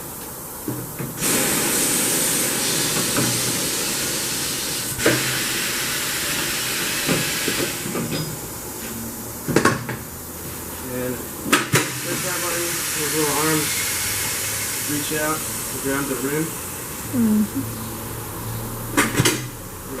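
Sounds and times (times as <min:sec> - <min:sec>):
compressed air hissing: 0:01.0 - 0:19.0.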